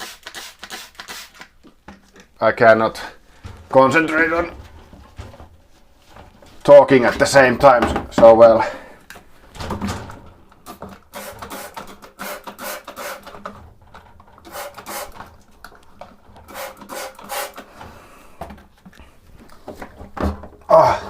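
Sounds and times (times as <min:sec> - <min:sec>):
stiff brush scrubbing metal: 0:16.5 - 0:17.6.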